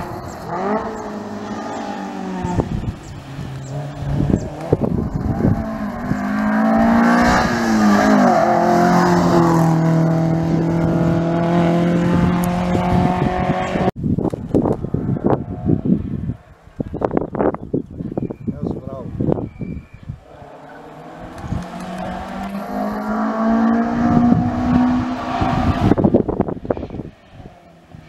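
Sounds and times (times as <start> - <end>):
rally car engine revving: 0.0 - 13.9, 20.2 - 28.0.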